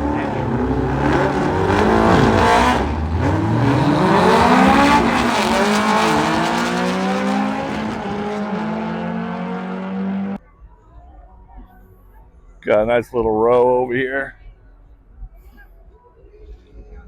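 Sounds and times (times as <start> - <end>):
car engine revving hard: 0.0 - 10.4.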